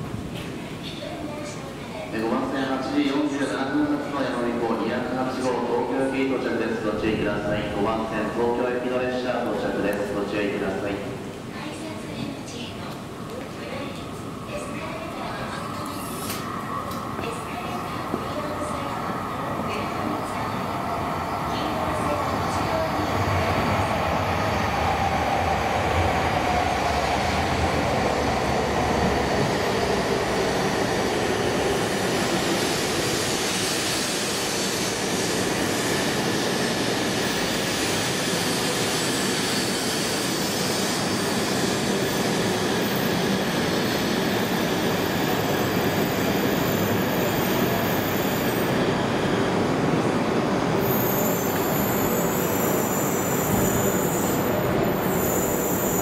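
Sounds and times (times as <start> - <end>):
train running noise: 21.4 - 56.0
train braking whine: 50.8 - 56.0.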